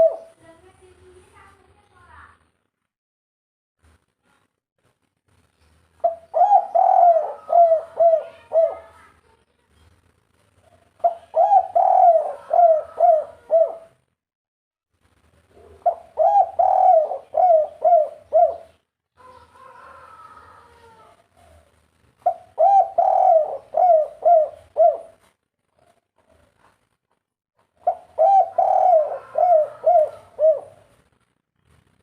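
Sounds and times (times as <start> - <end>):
dove cooing: 0.0 - 0.4, 6.0 - 9.0, 10.7 - 14.0, 15.5 - 20.2, 20.8 - 25.2, 27.8 - 31.0.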